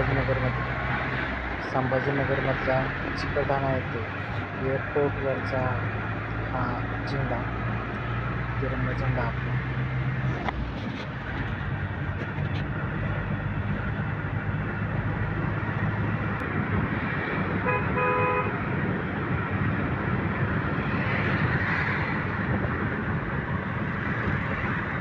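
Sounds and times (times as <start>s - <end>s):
road traffic drone: 0.0s - 25.0s
vehicle horn honking: 17.6s - 18.6s.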